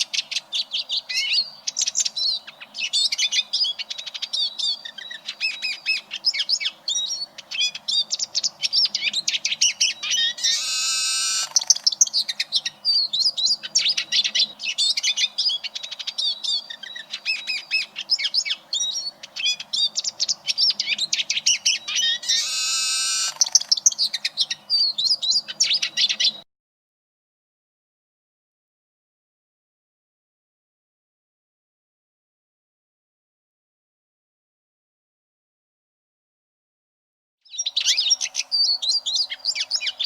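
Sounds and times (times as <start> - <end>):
bird twittering warble: 0.0 - 26.4, 37.5 - 40.0
bird buzzy wheeze: 22.3 - 23.6.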